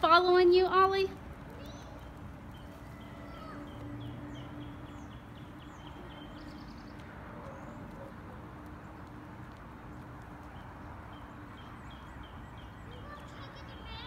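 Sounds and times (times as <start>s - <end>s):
bird chirping and trilling: 1.5s - 7.9s.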